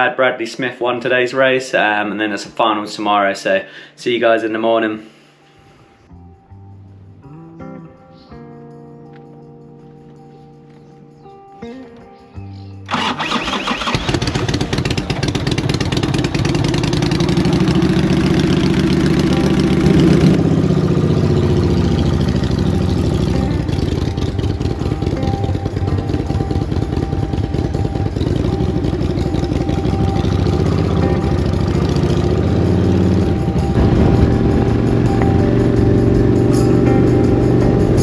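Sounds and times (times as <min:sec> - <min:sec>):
motorcycle engine revving: 0:12.9 - 0:38.0.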